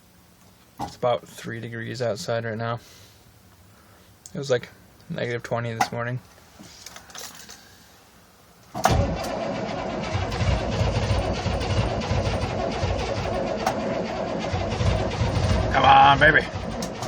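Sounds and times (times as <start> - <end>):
diesel engine turning over unevenly: 8.8 - 17.0
starter motor cranking: 8.8 - 17.0.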